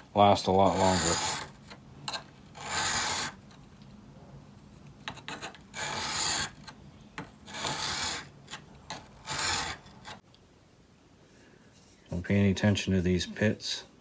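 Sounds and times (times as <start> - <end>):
chisel scraping on whetstone: 0.5 - 3.6, 5.1 - 10.2.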